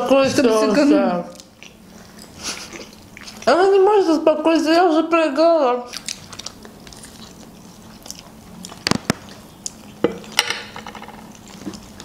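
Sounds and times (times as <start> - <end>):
chewing soft food: 1.3 - 3.7, 5.9 - 10.4, 11.3 - 12.0.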